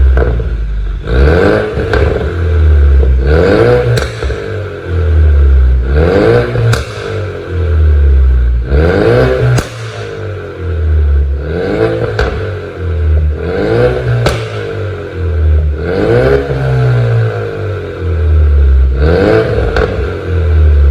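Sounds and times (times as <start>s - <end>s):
exhaust pops and crackles: 0.0s - 0.6s, 1.7s - 3.2s, 3.9s - 4.6s, 6.6s - 7.3s, 9.5s - 10.1s, 12.0s - 13.4s, 14.1s - 14.9s, 19.6s - 20.2s
car engine revving: 0.0s - 20.9s.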